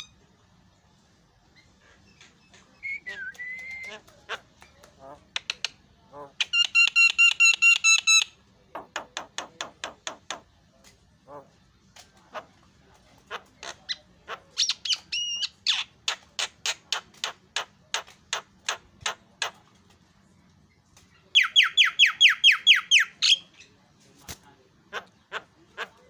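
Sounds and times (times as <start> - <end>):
myna calling: 24.9 - 26.0.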